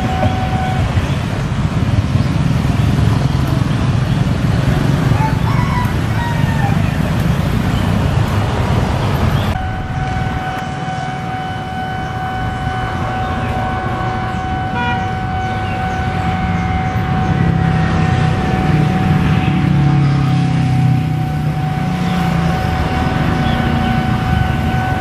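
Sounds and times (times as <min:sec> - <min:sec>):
steady high tone: 0:00.0 - 0:01.0, 0:09.5 - 0:25.0
train rumble: 0:00.0 - 0:25.0.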